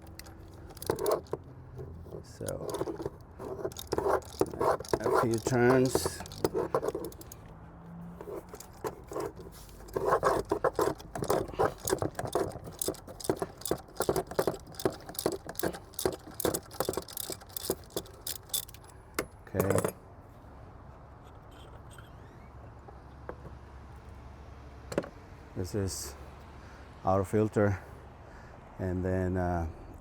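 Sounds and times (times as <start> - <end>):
ratchet clicking: 0.0 - 7.5, 8.2 - 19.0.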